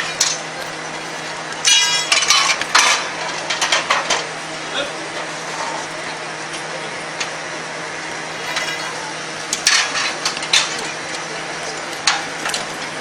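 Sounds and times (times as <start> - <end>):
metal clanks and knocks: 0.0 - 4.3, 8.4 - 13.0
steady background hum: 0.0 - 13.0.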